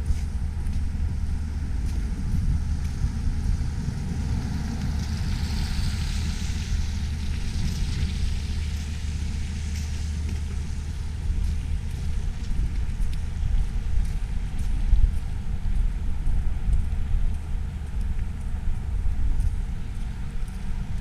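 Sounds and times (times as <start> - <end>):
city traffic noise: 0.0 - 21.0
wind buffeting microphone: 0.0 - 21.0
vehicle hiss: 3.5 - 10.2.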